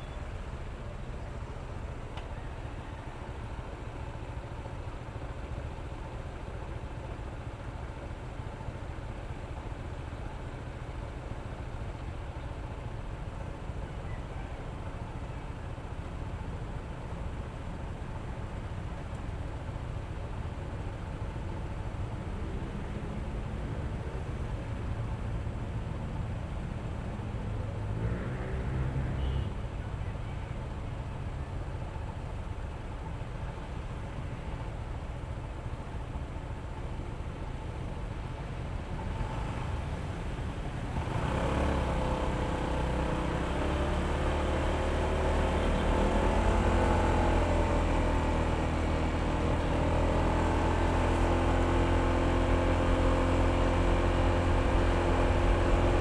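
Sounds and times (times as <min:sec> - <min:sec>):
road and wind noise: 0:00.0 - 0:56.0
scooter engine running: 0:38.2 - 0:56.0.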